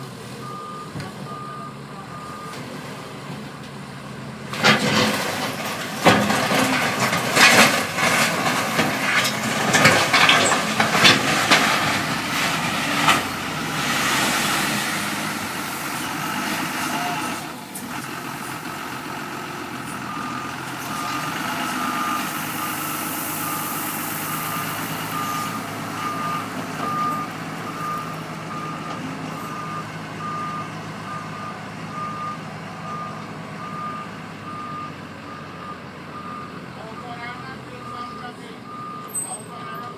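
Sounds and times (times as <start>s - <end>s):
diesel engines running: 0.0s - 39.9s
reversing alarm beeping: 0.4s - 2.6s, 24.4s - 39.9s.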